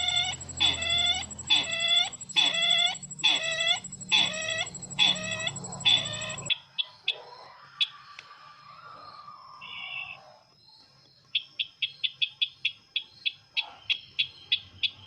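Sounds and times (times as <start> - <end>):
bird call: 0.0 - 6.5
faint high whine: 0.0 - 6.5.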